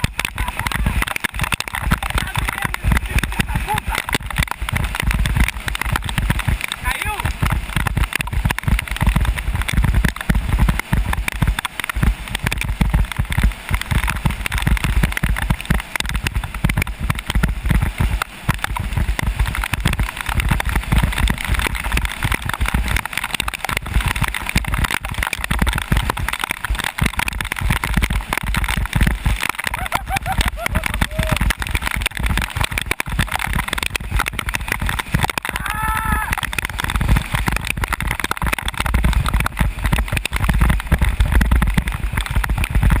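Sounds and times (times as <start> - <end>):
water sloshing and spraying: 0.0 - 35.5, 36.3 - 43.0
wet tyres hissing on road: 0.0 - 38.2
wind buffeting microphone: 0.0 - 43.0.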